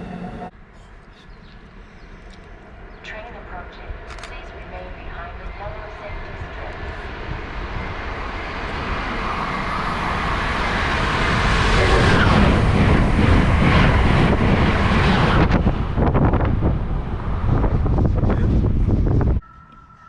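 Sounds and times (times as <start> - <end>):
train rushing past: 0.0 - 0.5, 4.6 - 20.0.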